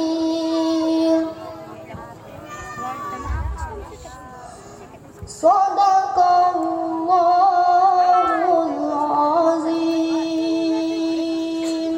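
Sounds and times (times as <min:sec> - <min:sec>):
melodic singing voice: 0:05.3 - 0:11.9.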